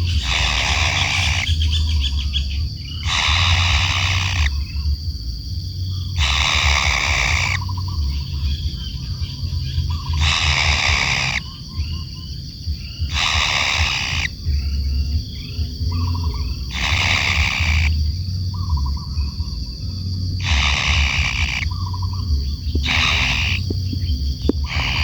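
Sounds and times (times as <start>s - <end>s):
kingfisher harsh rasping call: 0.0s - 1.9s, 3.0s - 4.6s, 6.2s - 8.3s, 9.8s - 11.5s, 13.1s - 14.5s, 15.9s - 18.1s, 20.4s - 25.0s
high whine: 0.0s - 25.0s
low hum: 0.0s - 25.0s
soft chirps and rattles: 0.0s - 25.0s.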